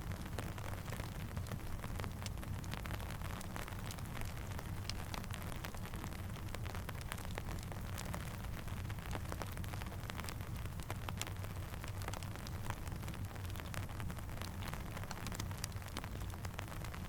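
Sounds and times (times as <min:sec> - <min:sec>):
campfire crackling: 0:00.0 - 0:17.0
steady rain: 0:00.0 - 0:17.0.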